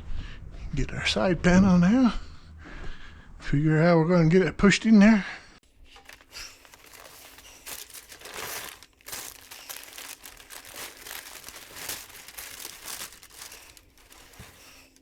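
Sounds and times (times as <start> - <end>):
rustling and scraping of parts: 5.9 - 15.0.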